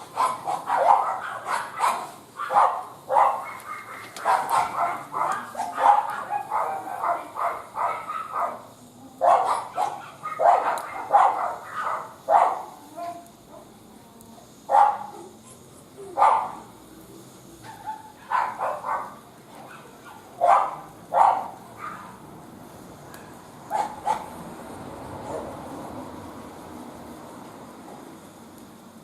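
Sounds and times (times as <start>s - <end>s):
dog barking: 0.1s - 12.8s, 14.7s - 15.2s, 16.2s - 16.6s, 17.6s - 22.2s, 23.1s - 24.3s.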